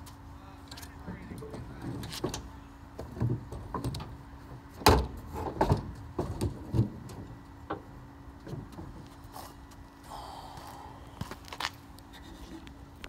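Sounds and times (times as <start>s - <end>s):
low hum: 0.0s - 13.0s
knocks and clunks: 1.0s - 9.0s.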